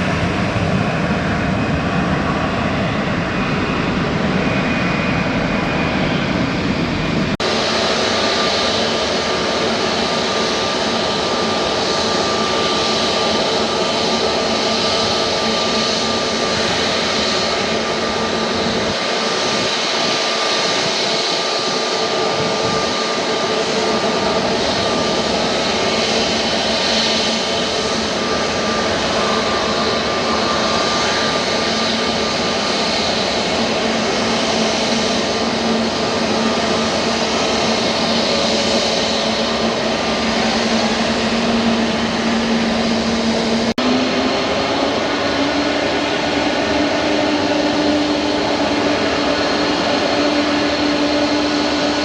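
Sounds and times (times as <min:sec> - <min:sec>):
jet engines running: 0:00.0 - 0:52.0.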